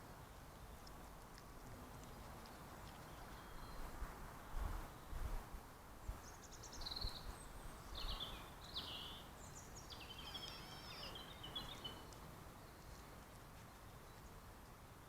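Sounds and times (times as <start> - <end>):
songbird warbling: 8.0 - 12.0.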